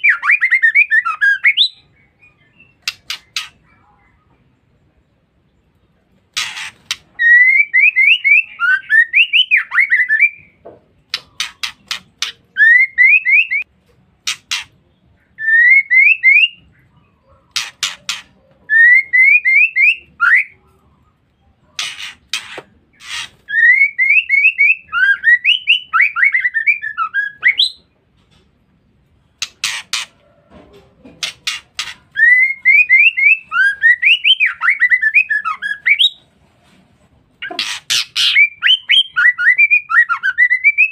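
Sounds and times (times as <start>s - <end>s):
bird chattering call: 14.2s - 14.8s.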